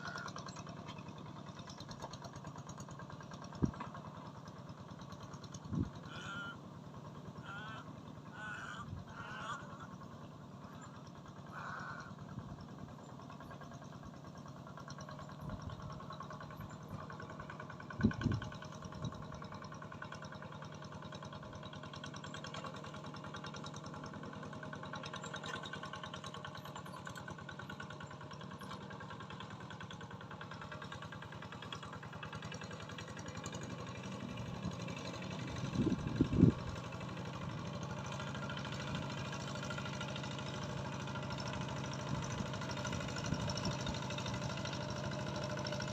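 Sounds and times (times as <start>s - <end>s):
engine running steadily: 0.0s - 45.9s.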